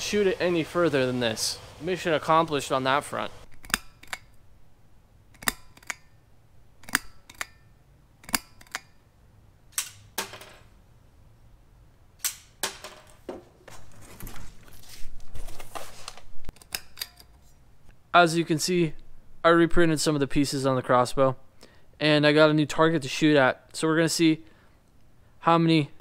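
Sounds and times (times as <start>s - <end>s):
plastic crossbow clicks and snaps: 6.8s - 7.6s.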